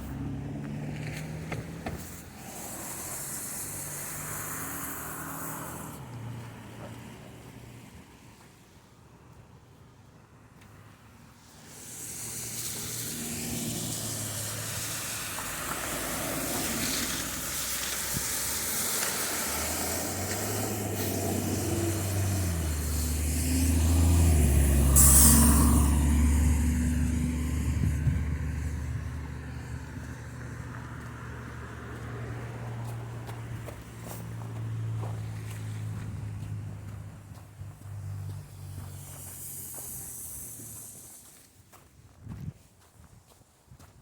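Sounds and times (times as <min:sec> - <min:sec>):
heavy vehicle engine drone: 0:00.0 - 0:07.6, 0:10.7 - 0:41.5
air brakes hiss: 0:01.9 - 0:06.1, 0:11.4 - 0:28.7, 0:38.6 - 0:41.6
tyre noise on snow: 0:11.4 - 0:26.4, 0:30.5 - 0:42.6.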